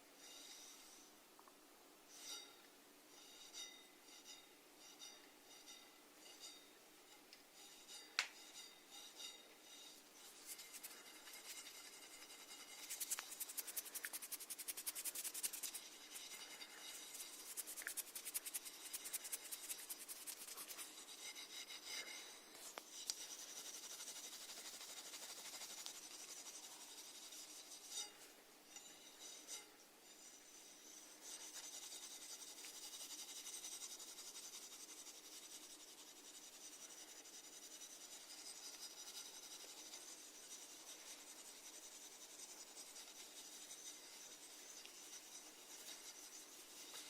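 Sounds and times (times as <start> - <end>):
snails rasping and scratching: 9.8 - 28.3, 30.2 - 47.0.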